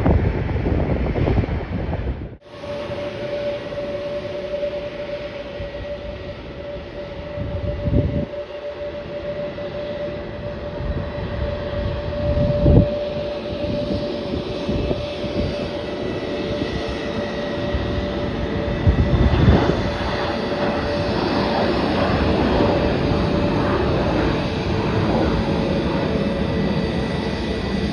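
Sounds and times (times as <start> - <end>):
jet engines whining: 0.0 - 27.9.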